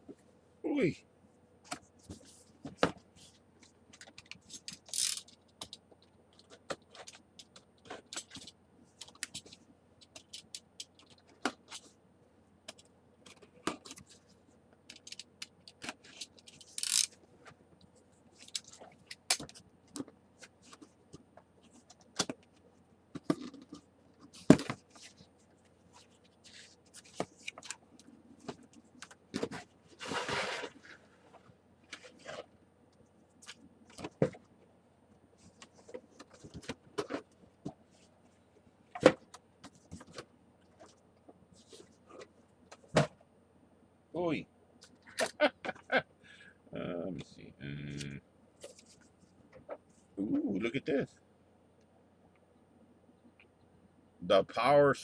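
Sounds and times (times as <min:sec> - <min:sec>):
cardboard scraping: 0:29.4 - 0:31.0.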